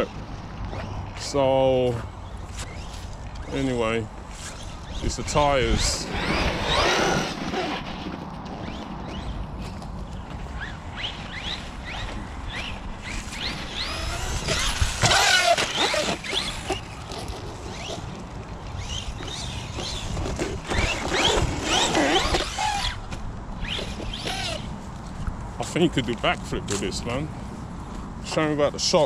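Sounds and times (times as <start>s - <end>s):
toy car electric motor whining: 5.7s - 9.3s, 11.0s - 18.1s, 18.8s - 23.0s, 23.6s - 24.7s.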